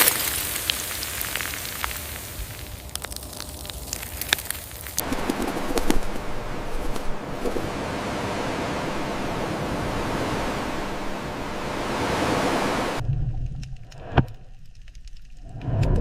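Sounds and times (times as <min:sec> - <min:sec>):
steady rushing noise: 0:05.0 - 0:13.0
low rumble: 0:05.0 - 0:14.7.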